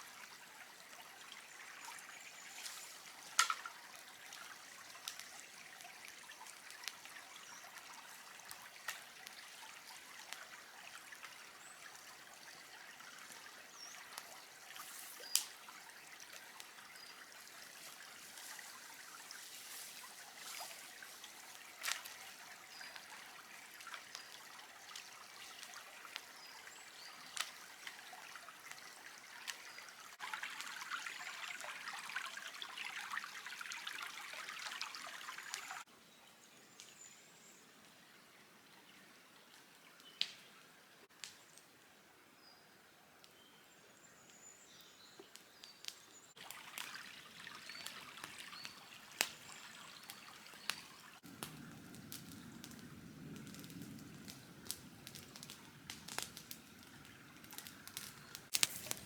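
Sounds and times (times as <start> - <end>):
trickling hiss: 0.0 - 35.9, 44.0 - 59.0
sharp crackles: 13.2 - 29.7, 47.6 - 59.0.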